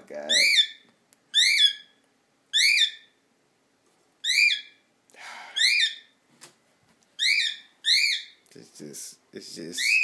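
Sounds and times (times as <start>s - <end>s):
cockatiel calling: 0.2s - 3.2s, 4.2s - 4.8s, 5.5s - 6.2s, 7.2s - 8.4s, 9.8s - 10.0s.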